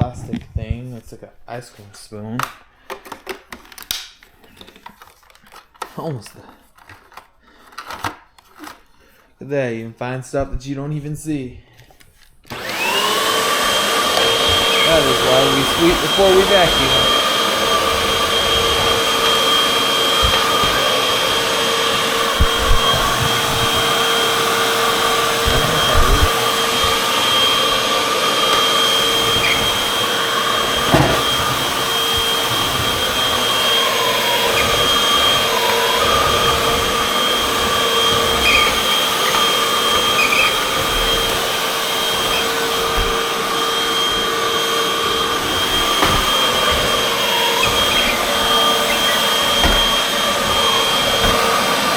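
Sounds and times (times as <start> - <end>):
vacuum cleaner running: 12.5 - 51.9
vacuum cleaner knocks: 12.6 - 51.9.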